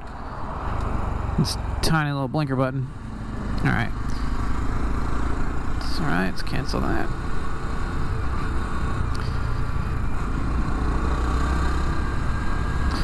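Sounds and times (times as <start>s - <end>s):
motorcycle engine running: 2.9s - 13.0s.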